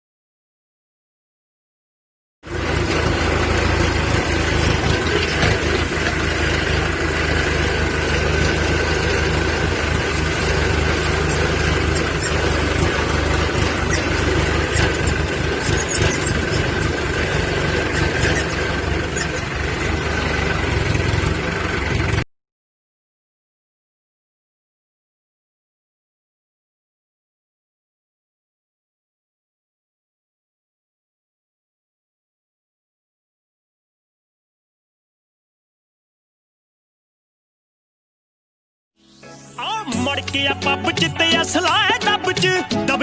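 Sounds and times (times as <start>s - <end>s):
tractor engine running: 2.4s - 22.3s, 39.6s - 43.0s.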